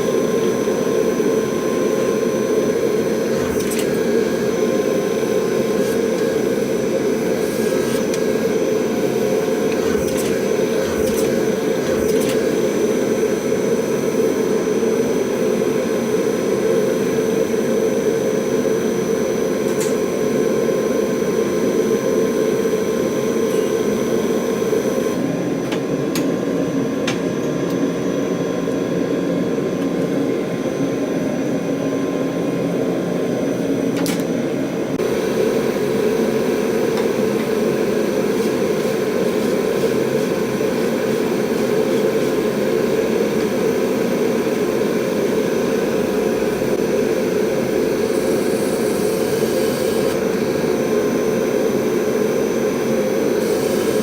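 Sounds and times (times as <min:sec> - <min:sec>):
workshop equipment roaring: 0:00.0 - 0:54.0.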